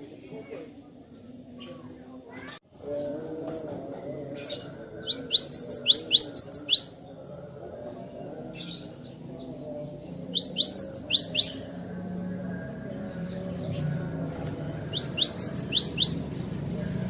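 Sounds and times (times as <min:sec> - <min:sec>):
bird whistling rising notes: 0:10.4 - 0:11.6, 0:14.9 - 0:16.2.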